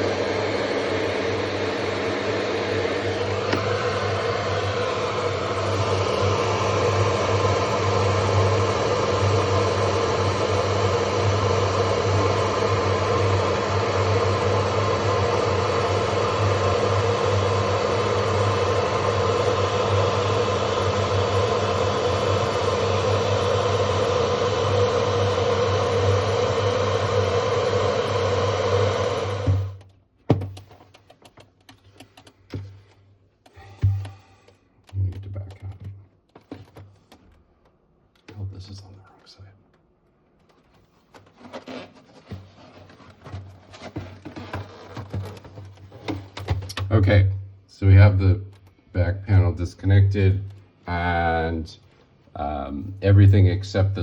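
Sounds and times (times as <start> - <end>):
hair dryer blowing: 0.0 - 29.8.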